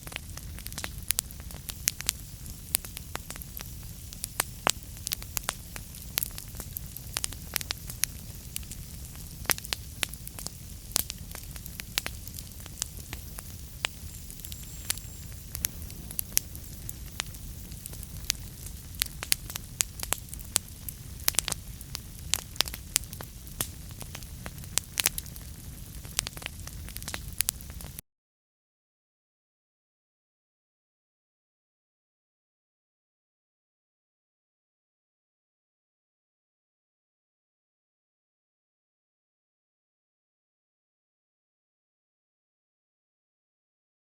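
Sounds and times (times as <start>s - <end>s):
fireplace fire crackling: 0.0s - 28.0s.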